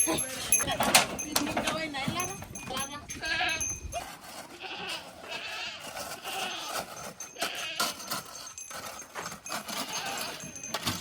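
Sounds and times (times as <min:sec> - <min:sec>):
livestock bleating: 0:03.2 - 0:03.7, 0:04.5 - 0:06.8, 0:07.4 - 0:08.0, 0:09.8 - 0:10.4.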